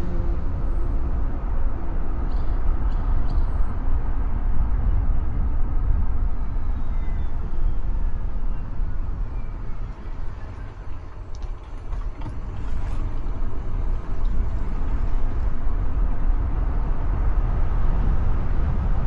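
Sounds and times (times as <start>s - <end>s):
car tyre and engine rumble: 0.0s - 19.0s.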